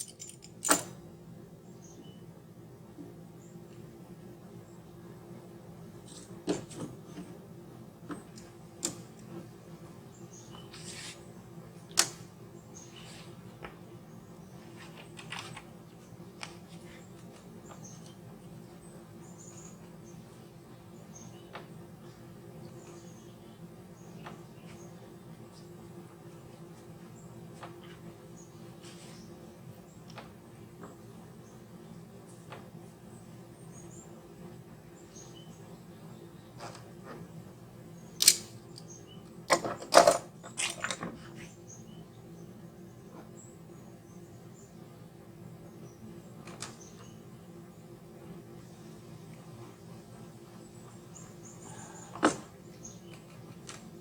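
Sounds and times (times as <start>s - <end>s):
small birds chirping: 10.0s - 11.3s, 16.8s - 27.4s, 34.9s - 36.7s, 37.9s - 39.4s, 41.3s - 48.0s, 50.2s - 53.5s.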